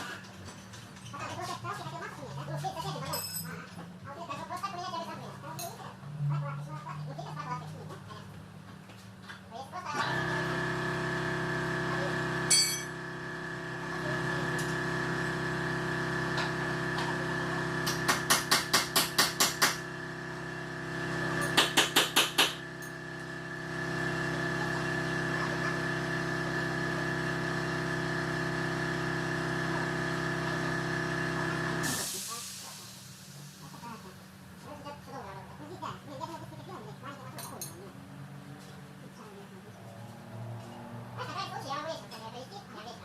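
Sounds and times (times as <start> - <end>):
workshop machinery humming: 0.0 - 43.0
metal tools striking: 3.1 - 3.5, 12.5 - 13.0
rapid hammer-like strikes: 17.9 - 19.8.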